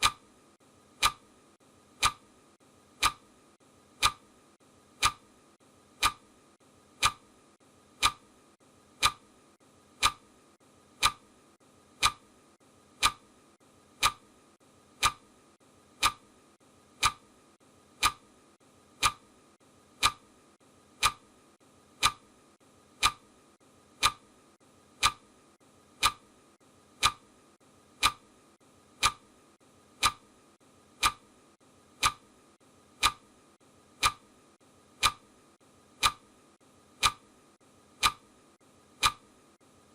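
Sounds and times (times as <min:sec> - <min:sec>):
clock ticking: 0:00.0 - 0:00.3, 0:00.9 - 0:01.3, 0:01.9 - 0:02.3, 0:02.9 - 0:03.3, 0:03.9 - 0:04.3, 0:04.9 - 0:05.3, 0:05.9 - 0:06.3, 0:06.9 - 0:07.3, 0:07.9 - 0:17.4, 0:18.0 - 0:19.4, 0:20.0 - 0:20.4, 0:21.0 - 0:21.4, 0:22.0 - 0:22.3, 0:22.9 - 0:23.4, 0:24.0 - 0:24.4, 0:25.0 - 0:25.3, 0:25.9 - 0:26.3, 0:27.0 - 0:27.3, 0:28.0 - 0:28.3, 0:29.0 - 0:29.3, 0:30.0 - 0:30.3, 0:31.0 - 0:31.3, 0:32.0 - 0:32.4, 0:33.0 - 0:33.4, 0:34.0 - 0:34.4, 0:35.0 - 0:35.3, 0:36.0 - 0:36.4, 0:37.0 - 0:37.3, 0:38.0 - 0:38.4, 0:39.0 - 0:39.3.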